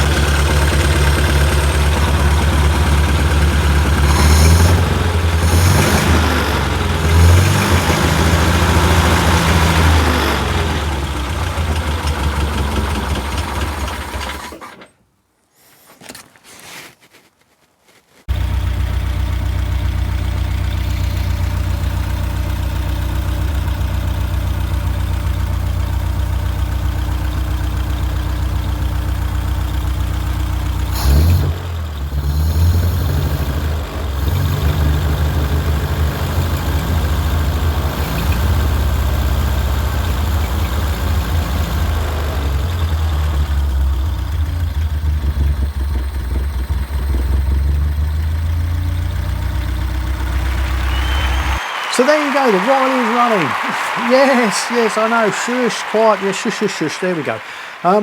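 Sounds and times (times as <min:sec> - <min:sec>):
car engine idling: 0:00.0 - 0:14.4, 0:18.3 - 0:51.6
loud engine burst: 0:00.0 - 0:14.6.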